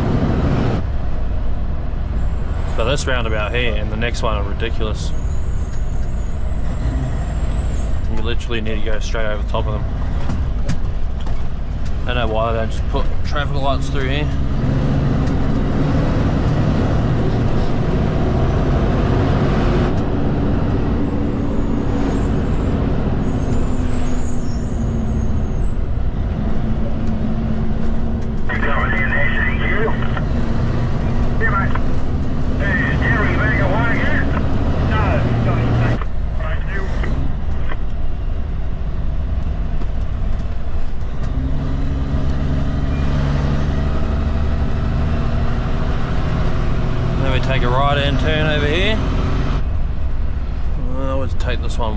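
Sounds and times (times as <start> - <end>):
diesel truck engine drone: 0.0 - 51.9
road noise: 0.0 - 51.9.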